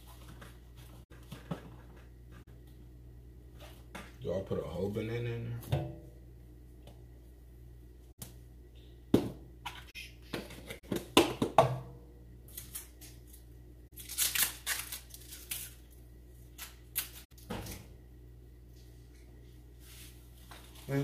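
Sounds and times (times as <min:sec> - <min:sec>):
kitchen knocks and clatters: 0:00.2 - 0:02.5, 0:05.6 - 0:06.1, 0:09.1 - 0:12.0.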